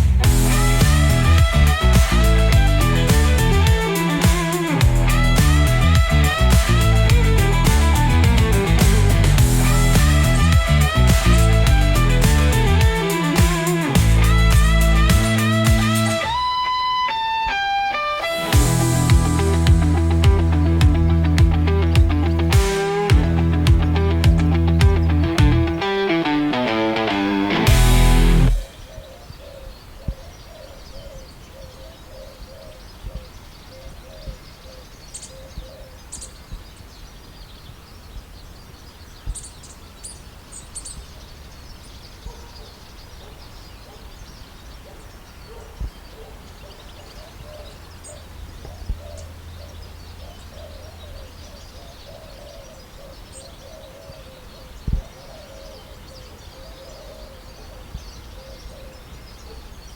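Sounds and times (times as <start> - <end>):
low thumps: 0.0 - 16.4, 18.5 - 25.8.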